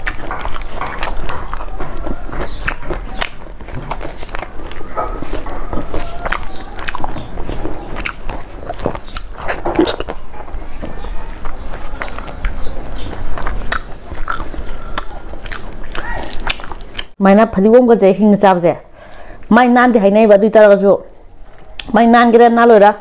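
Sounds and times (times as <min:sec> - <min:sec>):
chewing rice and fish: 0:00.0 - 0:17.2, 0:21.0 - 0:21.9
wet mouth clicks and smacks: 0:11.4 - 0:17.2, 0:21.1 - 0:21.9.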